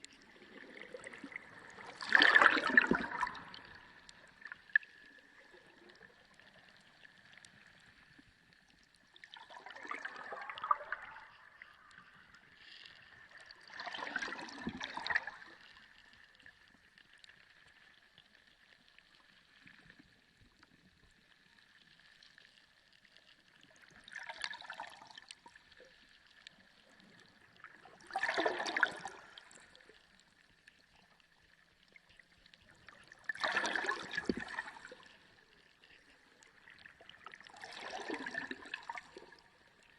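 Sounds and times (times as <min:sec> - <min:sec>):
water gurgling underwater: 0:00.0 - 0:07.8, 0:08.8 - 0:16.0, 0:23.7 - 0:39.9.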